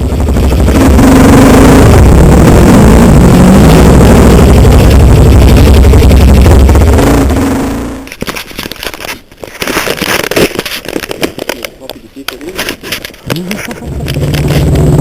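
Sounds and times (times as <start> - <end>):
dirt bike engine revving: 0.0 - 8.1, 13.8 - 15.0.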